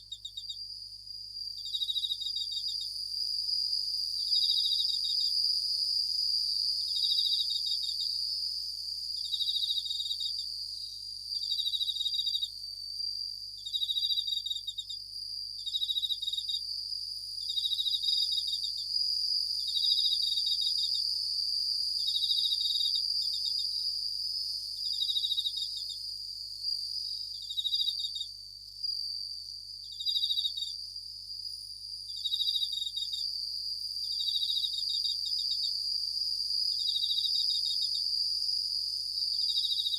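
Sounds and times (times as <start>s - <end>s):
high continuous insect trill: 0.0s - 39.9s
crickets ringing bursts: 11.3s - 15.0s, 26.6s - 29.3s, 29.9s - 30.8s, 32.1s - 35.8s, 39.2s - 39.9s.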